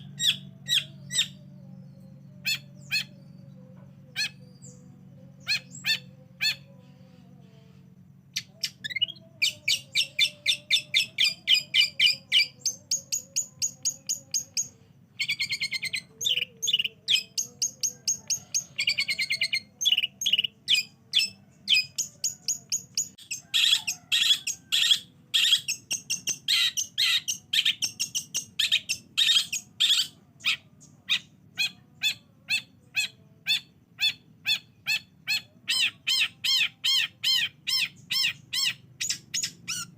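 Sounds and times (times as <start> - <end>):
harsh buzzy bird chattering: 0.0 - 39.9.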